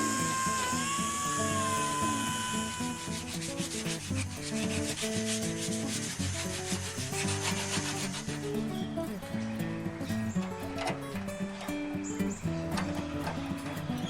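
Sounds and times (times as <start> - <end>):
high whine: 0.0 - 4.7
sanding strokes: 0.0 - 9.1.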